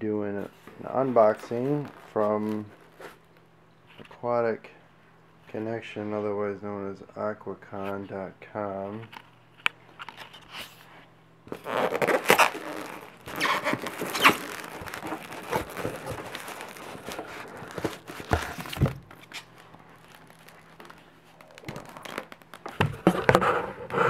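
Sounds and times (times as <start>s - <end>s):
packing tape tearing: 11.5s - 23.4s
cardboard scraping and rustling: 11.5s - 24.0s.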